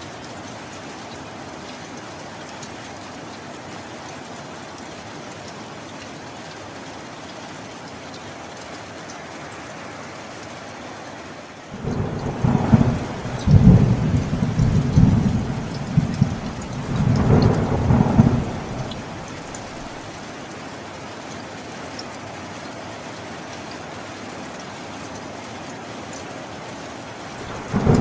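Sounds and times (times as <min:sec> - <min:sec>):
steady rain: 0:00.0 - 0:28.0
thunder rumbling: 0:11.8 - 0:20.1, 0:27.4 - 0:28.0.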